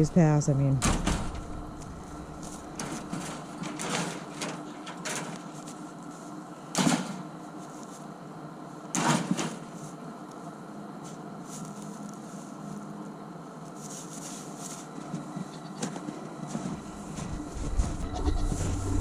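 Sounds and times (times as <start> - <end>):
footsteps crunching in snow: 1.8 - 3.6, 9.7 - 13.0, 13.6 - 19.0.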